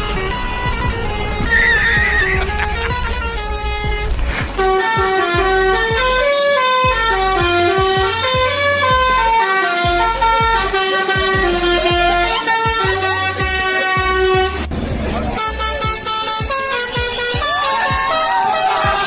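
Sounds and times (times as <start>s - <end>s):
low thumping beat: 0.0s - 14.7s
truck musical horn playing tune: 0.0s - 14.7s, 15.4s - 19.0s.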